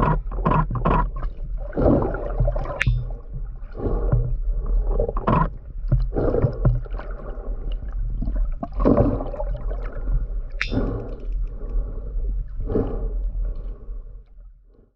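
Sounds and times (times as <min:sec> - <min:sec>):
sperm whale clicking: 0:00.0 - 0:14.8
underwater rumble: 0:00.0 - 0:14.9.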